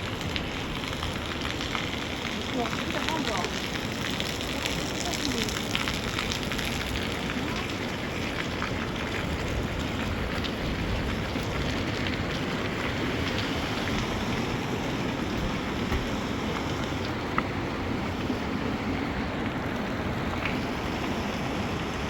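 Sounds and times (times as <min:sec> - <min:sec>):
heavy rain falling: 0:00.0 - 0:22.0
wind blowing: 0:10.6 - 0:17.9
drops tapping: 0:13.3 - 0:17.1.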